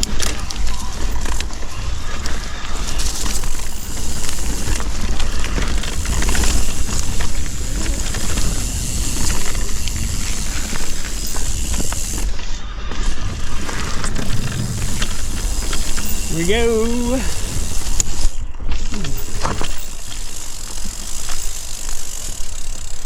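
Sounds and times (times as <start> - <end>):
wind on microphone: 0.0 - 12.3
bike rattling clicks: 0.0 - 23.0
bike tyres rumbling on dirt: 0.0 - 23.0.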